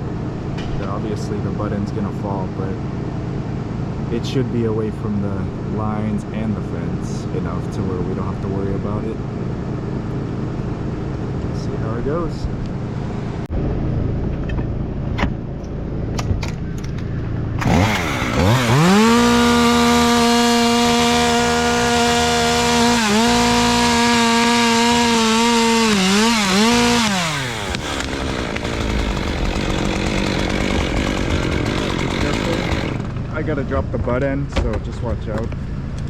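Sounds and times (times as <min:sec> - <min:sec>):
chainsaw cutting tree limb: 0:17.6 - 0:33.4.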